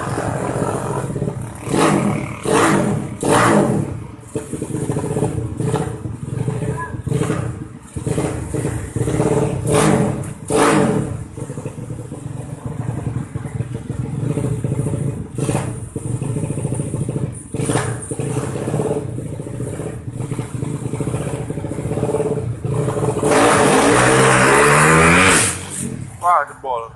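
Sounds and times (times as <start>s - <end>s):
motorcycle engine running roughly: 0.0s - 10.6s, 11.2s - 23.3s.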